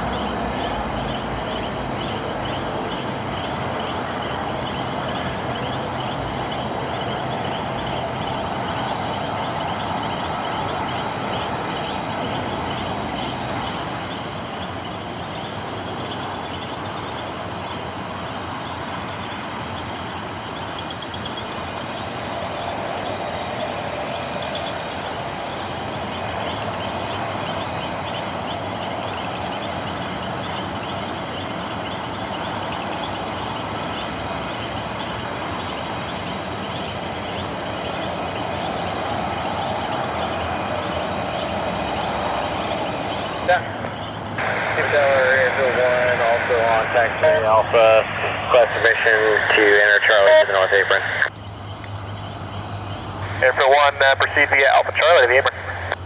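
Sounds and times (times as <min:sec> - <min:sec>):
jet engines running: 0:00.0 - 0:56.0.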